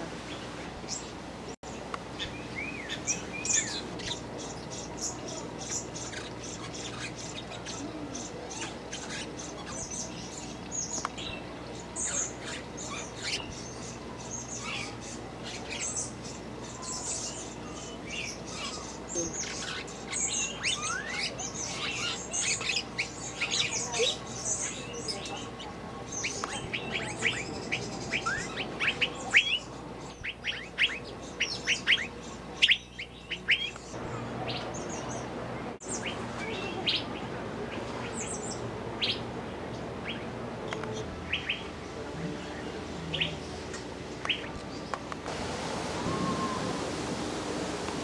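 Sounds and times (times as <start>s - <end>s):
small birds chirping: 0.0s - 48.0s.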